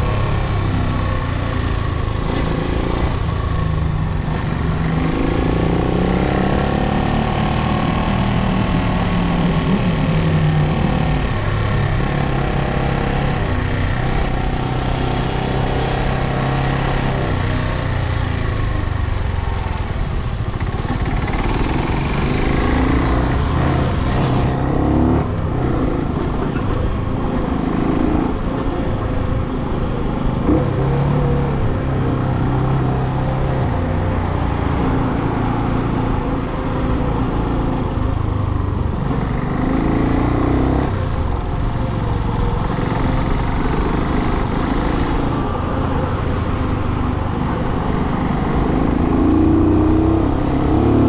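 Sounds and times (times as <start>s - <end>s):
motorcycle engine accelerating: 0.0s - 51.0s
wind and road hiss: 12.9s - 24.4s.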